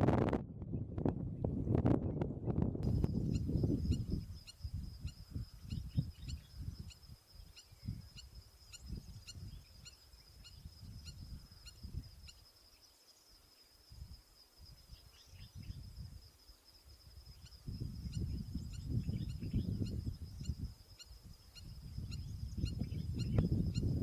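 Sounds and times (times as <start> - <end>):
wind on microphone: 0.0 - 12.4, 13.9 - 16.3, 17.0 - 24.0.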